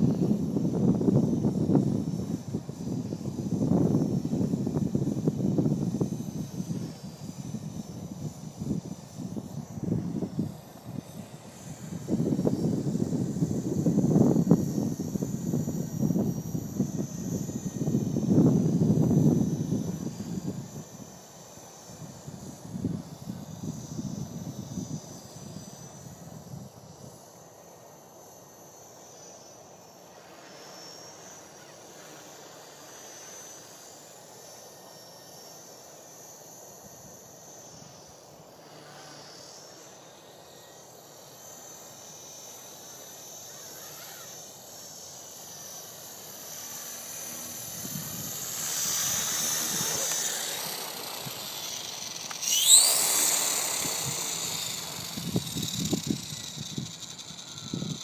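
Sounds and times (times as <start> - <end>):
rc helicopter whining: 0.0 - 58.0
wind buffeting microphone: 47.6 - 58.0.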